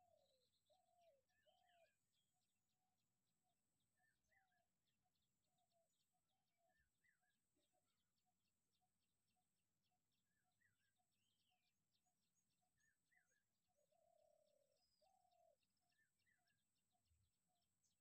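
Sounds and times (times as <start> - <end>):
longer louder bird call: 0.0 - 2.0
faint birdsong repeated note: 0.0 - 18.0.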